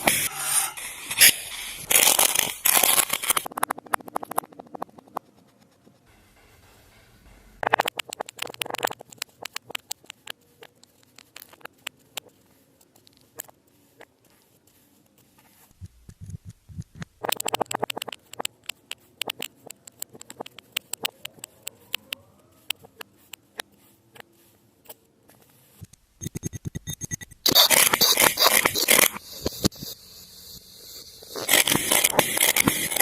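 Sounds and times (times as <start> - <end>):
soft low thumps: 15.7 - 17.2.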